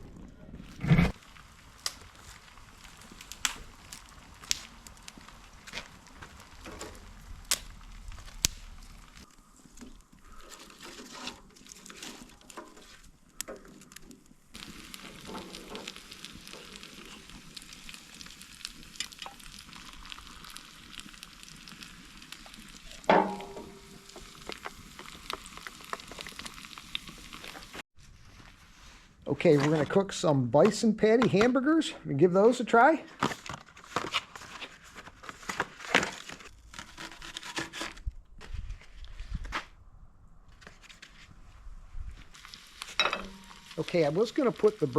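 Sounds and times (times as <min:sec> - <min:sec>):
campfire crackling and popping: 0:00.0 - 0:27.8, 0:41.7 - 0:44.9.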